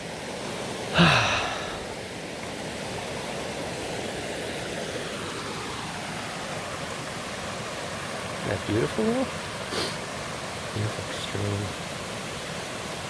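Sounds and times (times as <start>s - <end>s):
stream rushing: 0.0s - 13.0s
person sighing: 1.0s - 1.9s, 9.7s - 10.0s.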